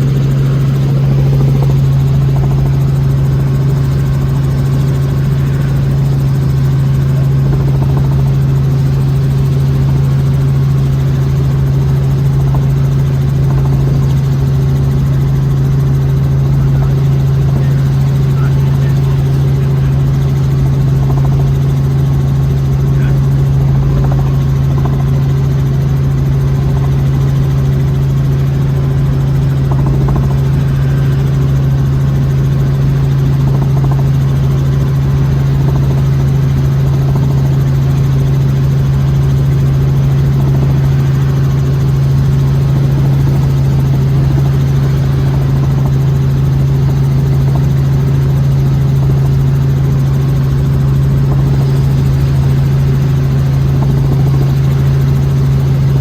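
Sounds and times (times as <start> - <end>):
helicopter drone: 0.0 - 56.0.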